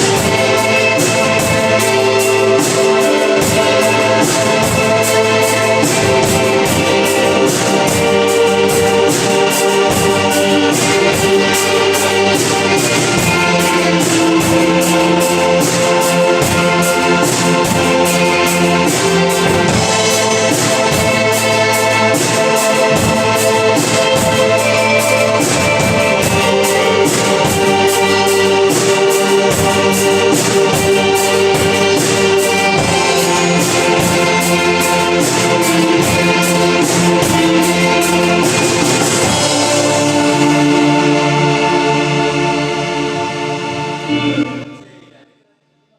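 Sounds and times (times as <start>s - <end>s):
live band music: 0.0s - 45.2s.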